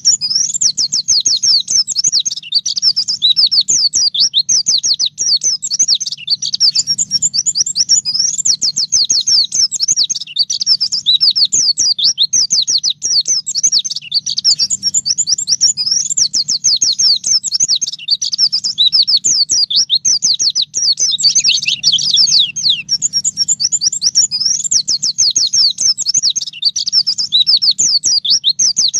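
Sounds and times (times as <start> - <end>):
bird chirping and trilling: 0.0 - 28.9.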